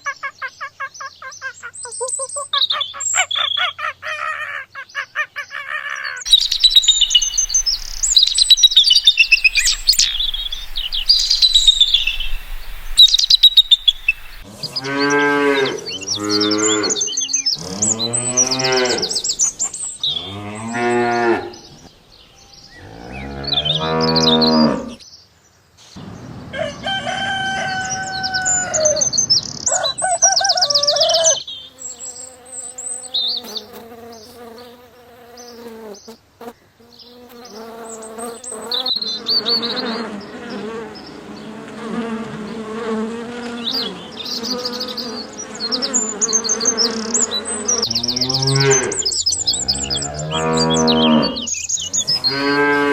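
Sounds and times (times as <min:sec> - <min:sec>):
birds chirping: 0:00.0 - 0:25.2, 0:26.0 - 0:52.9
higher animal calls: 0:06.2 - 0:17.0
cattle mooing: 0:17.6 - 0:19.2, 0:22.8 - 0:25.0, 0:47.9 - 0:51.5, 0:52.1 - 0:52.9.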